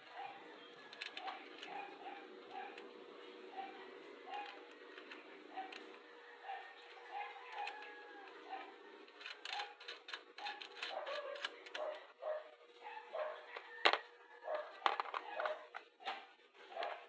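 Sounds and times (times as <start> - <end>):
dog barking in high yelps: 0.0 - 0.5, 1.2 - 2.9, 3.5 - 4.6, 5.5 - 8.8, 10.4 - 13.6, 14.4 - 17.0.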